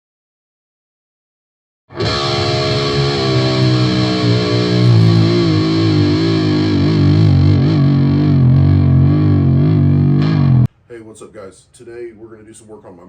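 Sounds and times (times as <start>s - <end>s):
distorted electric guitar: 1.9s - 10.7s.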